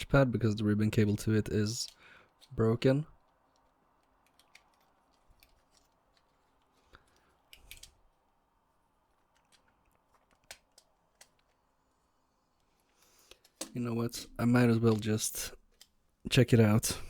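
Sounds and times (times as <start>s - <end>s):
plastic parts clicking: 3.2s - 8.1s, 9.1s - 11.7s, 12.6s - 13.8s, 14.8s - 16.0s.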